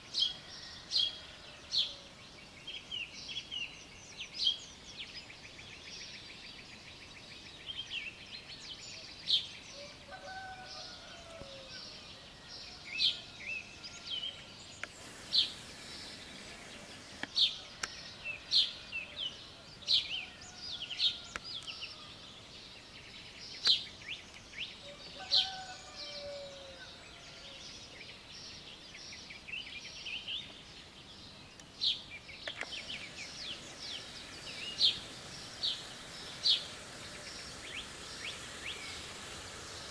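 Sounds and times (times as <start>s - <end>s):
songbirds chirping: 0.0s - 39.9s
distant rooster crowing: 0.1s - 2.2s, 9.8s - 14.5s, 20.0s - 22.0s, 24.8s - 27.6s, 32.6s - 39.9s.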